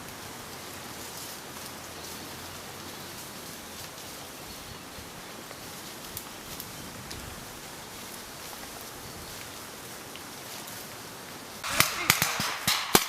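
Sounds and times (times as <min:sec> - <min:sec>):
outdoor rustle and hiss: 0:00.0 - 0:13.0
rifle gunshots: 0:11.6 - 0:13.0.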